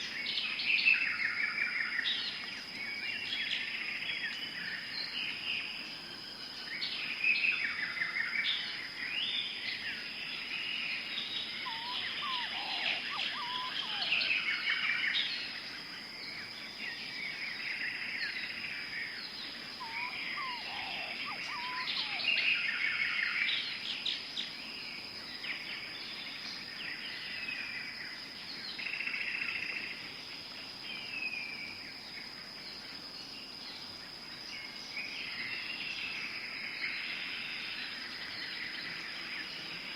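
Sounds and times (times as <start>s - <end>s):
low bird calls: 10.7s - 15.5s, 16.7s - 24.1s
birds chirping and calling: 11.0s - 15.4s, 19.2s - 23.7s
high-pitched insect drone: 11.5s - 15.1s, 19.8s - 23.0s.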